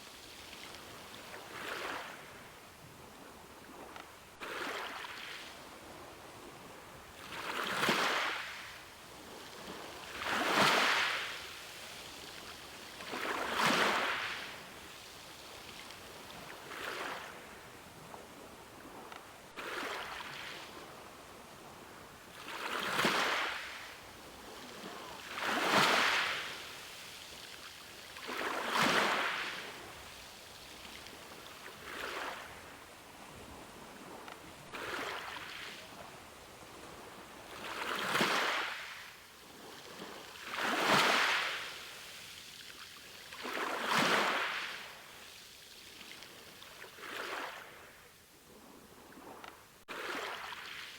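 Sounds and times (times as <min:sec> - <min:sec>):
ocean waves breaking: 0:18.8 - 0:27.1, 0:28.1 - 0:39.0.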